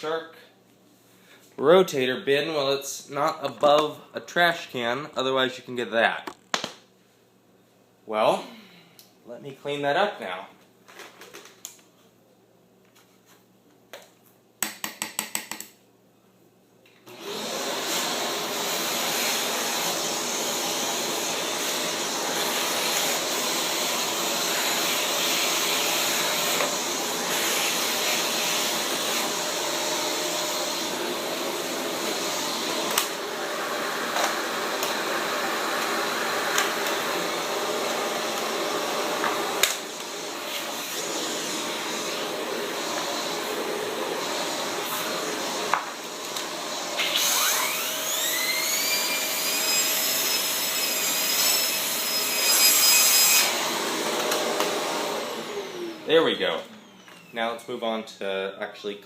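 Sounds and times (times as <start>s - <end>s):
upright vacuum running: 17.1s - 52.5s, 53.3s - 57.3s.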